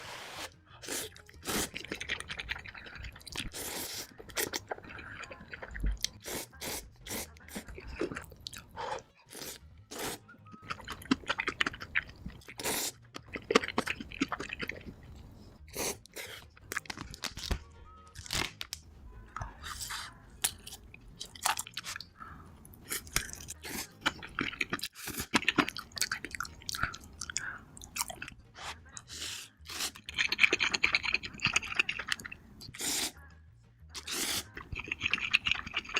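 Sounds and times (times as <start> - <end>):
crunchy chewing: 7.1 - 15.1, 19.7 - 33.1, 34.0 - 35.9.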